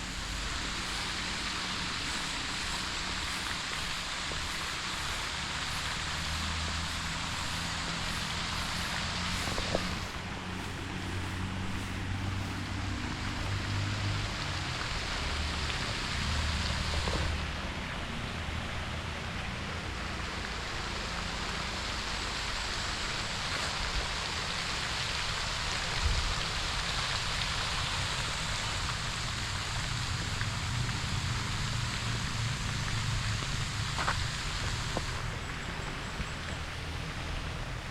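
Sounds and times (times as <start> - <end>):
even hiss: 0.0 - 37.9.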